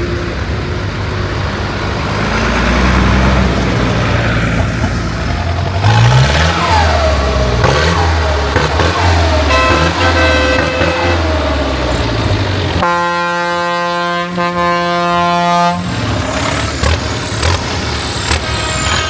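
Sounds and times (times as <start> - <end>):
tractor engines running: 0.0 - 19.0
vehicle horn long note: 9.4 - 11.3, 12.8 - 15.9.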